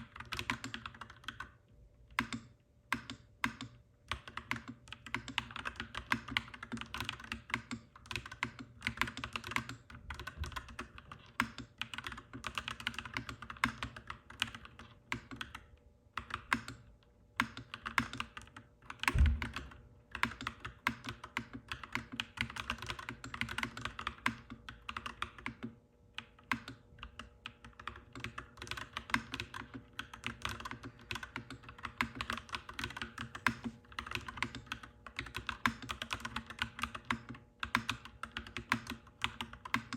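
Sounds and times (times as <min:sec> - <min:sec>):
mechanical keyboard typing: 0:00.0 - 0:39.9
heavy low thump: 0:19.1 - 0:19.6.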